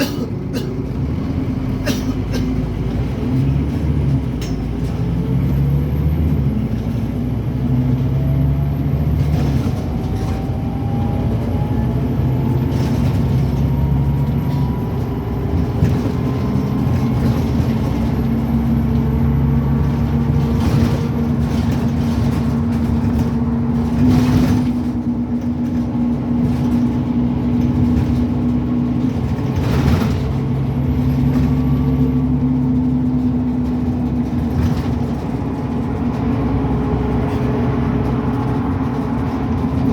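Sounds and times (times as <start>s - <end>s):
bus diesel engine accelerating: 0.0s - 39.9s.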